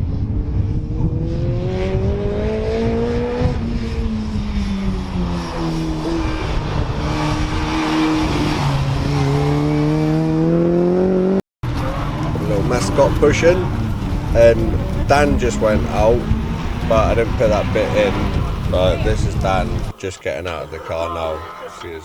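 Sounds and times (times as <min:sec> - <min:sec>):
stock car engine running hard: 0:11.7 - 0:20.0.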